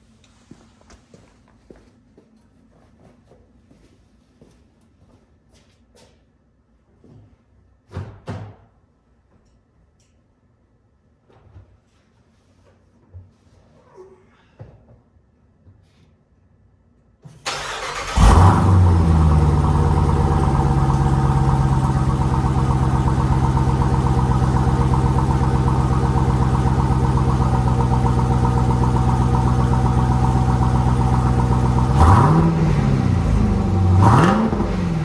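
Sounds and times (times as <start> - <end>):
car engine starting and idling: 17.4 - 35.0
engine throttle blips: 17.5 - 35.0.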